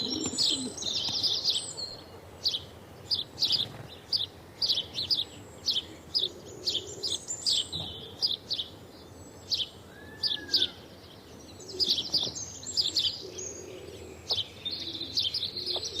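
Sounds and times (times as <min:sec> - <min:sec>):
small birds chirping: 0:00.0 - 0:16.0
low arching bird whistle: 0:09.9 - 0:10.8.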